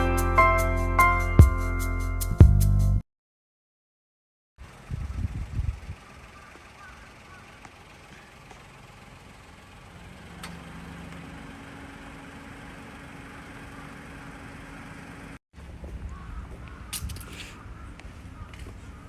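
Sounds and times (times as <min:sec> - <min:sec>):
car engine rumble: 0:04.6 - 0:15.4.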